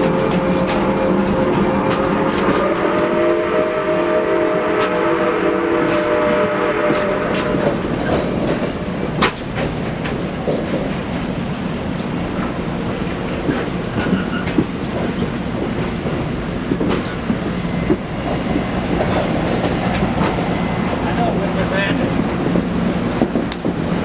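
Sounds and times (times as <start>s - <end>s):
railroad cars rumbling: 0.0s - 24.0s
wheels clicking over rail joints: 7.4s - 11.9s.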